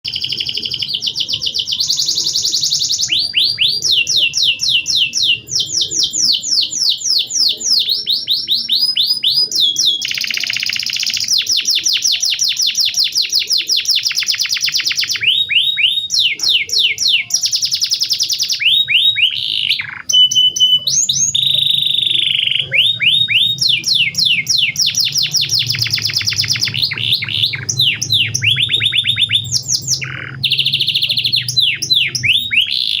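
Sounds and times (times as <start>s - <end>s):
canary singing trills: 0.0s - 33.0s.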